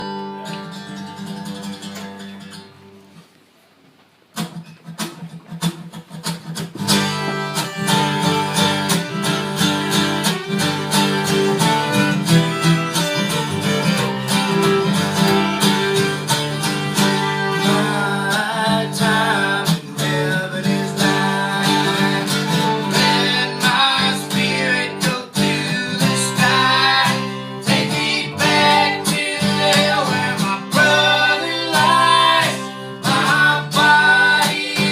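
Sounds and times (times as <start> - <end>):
acoustic guitar strumming: 0.0 - 3.3, 4.4 - 34.9
person singing: 17.5 - 34.9.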